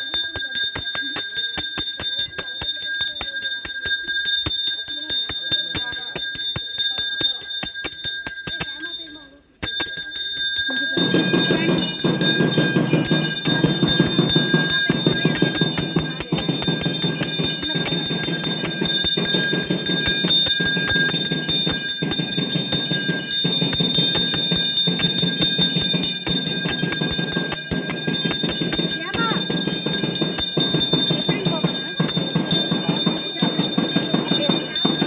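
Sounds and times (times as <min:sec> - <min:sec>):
bell ringing rapidly: 0:00.0 - 0:35.0.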